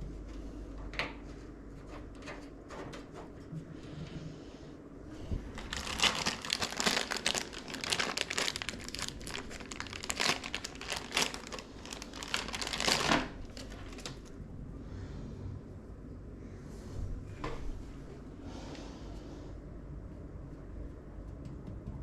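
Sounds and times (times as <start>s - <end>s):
packaging crinkling: 5.4s - 14.3s.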